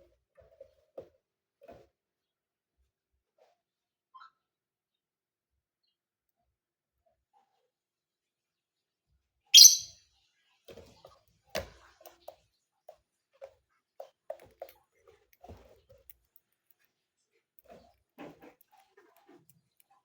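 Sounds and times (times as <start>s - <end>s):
bird shrill call: 9.6s - 9.9s.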